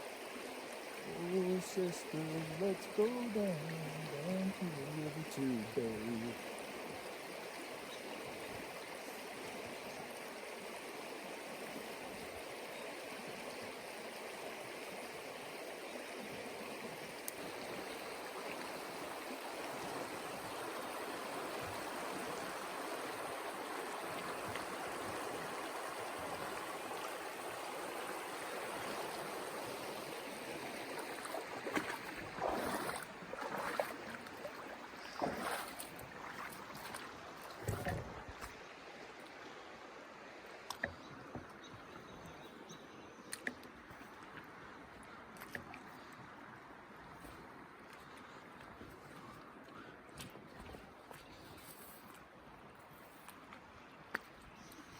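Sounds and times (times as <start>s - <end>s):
river rushing: 0.0s - 7.0s, 17.3s - 37.6s.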